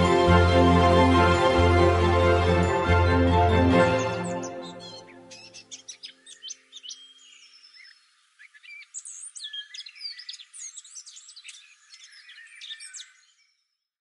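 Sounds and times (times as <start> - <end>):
small birds chirping: 4.0 - 13.8.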